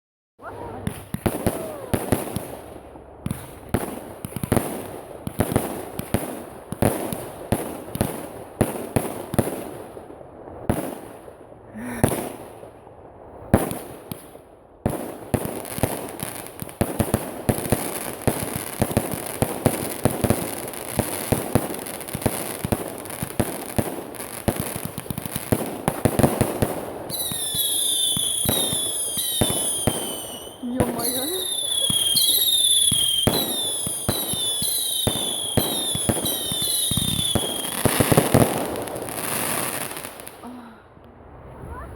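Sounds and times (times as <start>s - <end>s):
fireworks bangs and crackling: 0.4s - 40.6s
whistling firework shells: 27.1s - 38.6s.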